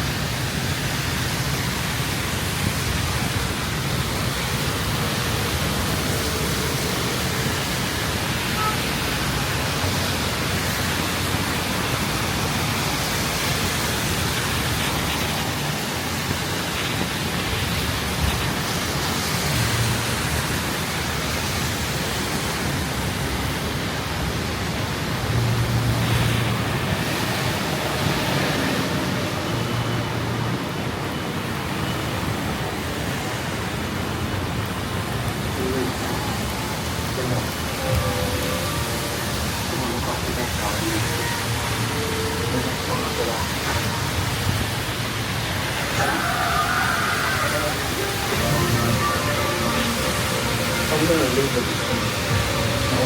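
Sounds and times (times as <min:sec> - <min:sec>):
heavy rain downpour: 0:00.0 - 0:53.0
low thunder rumbles: 0:25.1 - 0:32.5.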